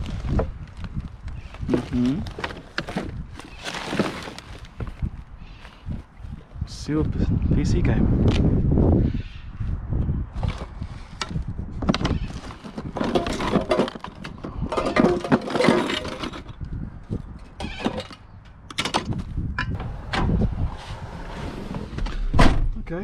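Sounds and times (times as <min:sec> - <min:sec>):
rustling: 0:00.0 - 0:06.0
items clattering and scraping: 0:00.0 - 0:06.1, 0:10.4 - 0:19.9.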